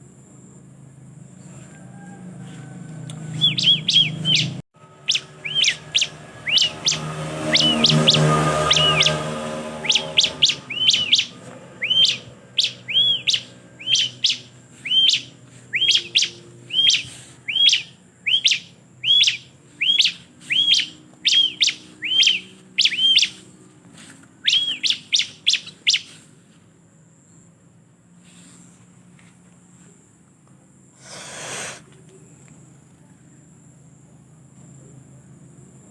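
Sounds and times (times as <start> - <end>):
bird calling sharp notes: 3.2 - 23.5, 24.4 - 26.2.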